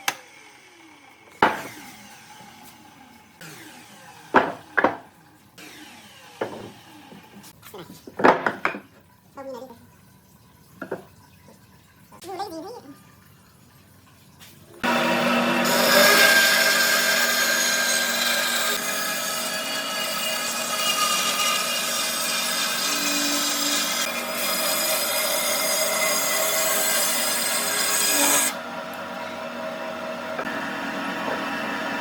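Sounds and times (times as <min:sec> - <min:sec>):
power tool grinding wood: 0:00.0 - 0:05.0, 0:05.6 - 0:07.6, 0:14.8 - 0:32.0.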